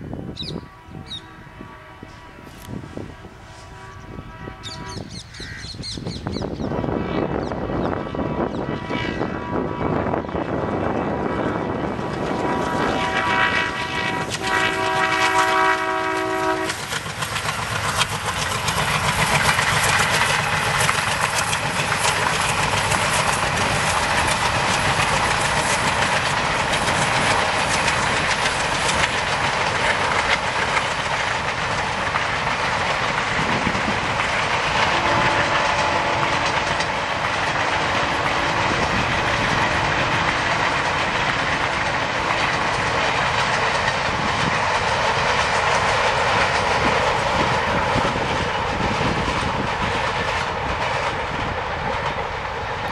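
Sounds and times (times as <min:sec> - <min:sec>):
locomotive multi-tone horn: 0:00.6 - 0:05.1, 0:06.8 - 0:10.2, 0:12.2 - 0:16.9, 0:34.8 - 0:40.8.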